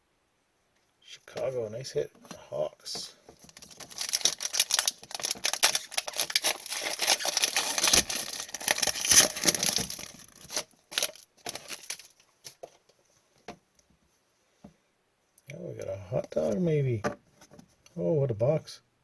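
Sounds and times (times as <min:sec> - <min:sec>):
card pack wrapper tearing: 0:03.6 - 0:12.2.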